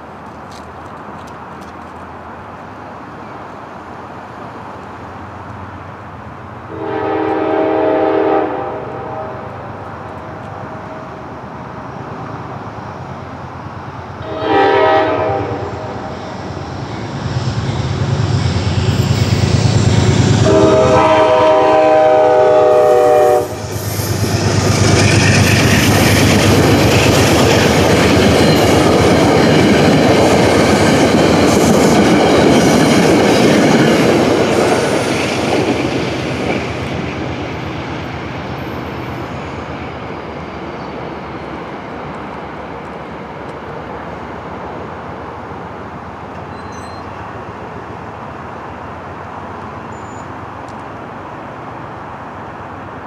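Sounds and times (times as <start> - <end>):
train wheels rumbling on rails: 0.0 - 53.0
train horn blasts: 6.7 - 9.5, 14.2 - 16.1, 20.0 - 23.7.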